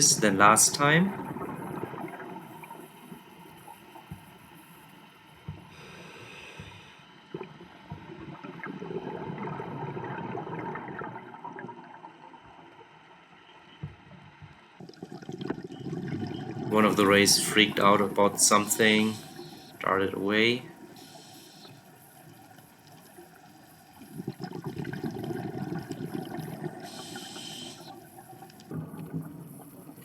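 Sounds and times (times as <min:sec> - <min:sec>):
gurgle of exhaled bubbles: 0:00.8 - 0:03.4, 0:07.3 - 0:12.5, 0:14.8 - 0:20.1, 0:23.7 - 0:30.0
diver inhaling through regulator: 0:05.7 - 0:07.2, 0:18.7 - 0:19.8, 0:20.9 - 0:21.9, 0:26.1 - 0:28.0.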